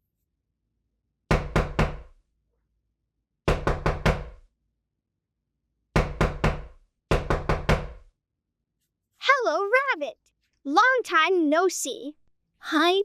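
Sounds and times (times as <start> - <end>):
knocking on a door: 1.3 - 2.2, 3.5 - 4.4, 6.0 - 8.1.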